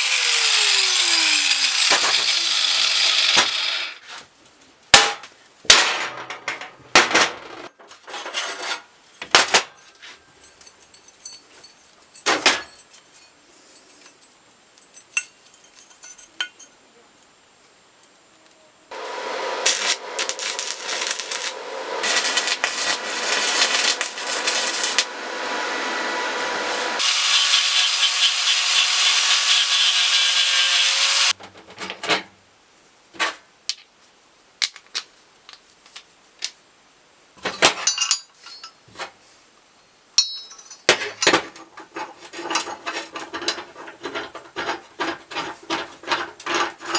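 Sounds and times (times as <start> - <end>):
rough sawing or rasping: 0.0 - 4.0, 18.9 - 31.4
high hiss: 18.6 - 31.3.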